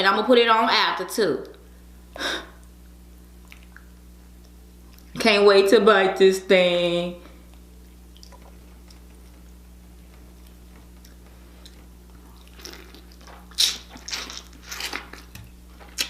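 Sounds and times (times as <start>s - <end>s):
crab shell crunching: 10.4s - 16.0s.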